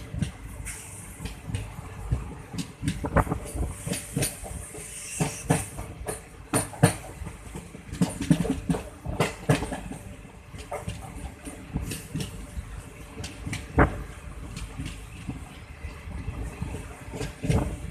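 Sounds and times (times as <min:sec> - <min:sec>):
train wheels clacking: 0:00.0 - 0:12.6
train coach rattling: 0:00.0 - 0:17.9.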